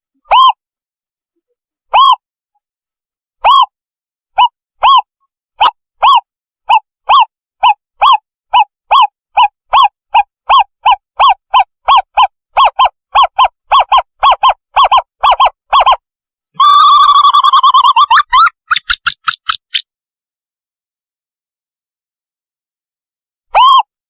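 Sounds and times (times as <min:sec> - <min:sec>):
owlet hoots and trill: 0:00.2 - 0:00.6, 0:01.9 - 0:02.2, 0:03.4 - 0:19.8, 0:23.5 - 0:24.0.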